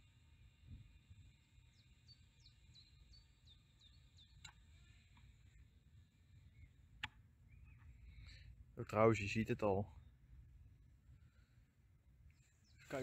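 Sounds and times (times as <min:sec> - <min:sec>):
bird chirping: 0:01.2 - 0:08.5, 0:12.3 - 0:13.0
faint clicks: 0:04.4 - 0:05.3.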